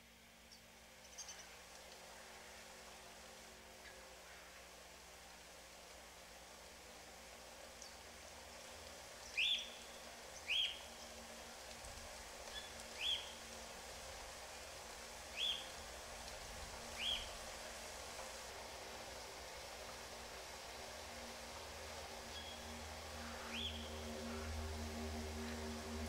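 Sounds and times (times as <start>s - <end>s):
faint steady hiss: 0.0s - 26.0s
bird calling: 9.3s - 10.9s, 12.5s - 13.4s, 15.3s - 15.7s, 17.0s - 17.3s, 22.3s - 24.6s.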